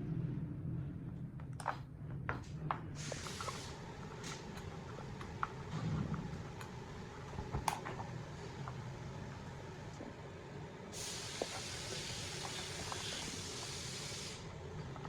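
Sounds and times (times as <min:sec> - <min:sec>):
steady low hum: 0:00.0 - 0:15.0
spray hiss: 0:03.0 - 0:03.8, 0:10.9 - 0:14.5.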